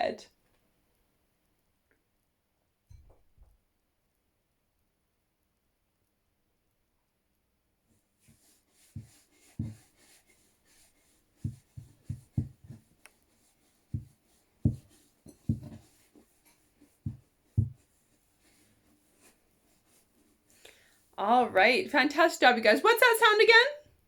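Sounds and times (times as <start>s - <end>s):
faint scratching of writing: 7.9s - 21.1s
soft knocks of pen strokes: 8.2s - 20.4s
writing on a board: 8.2s - 20.4s.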